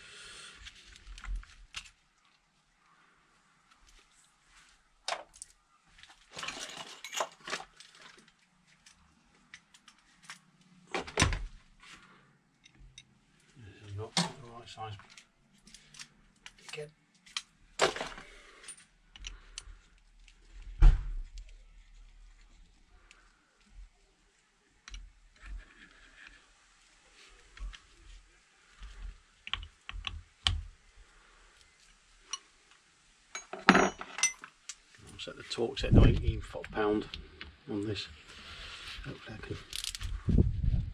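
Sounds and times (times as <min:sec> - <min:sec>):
metal tools clinking: 0:06.3 - 0:07.6, 0:33.3 - 0:34.5.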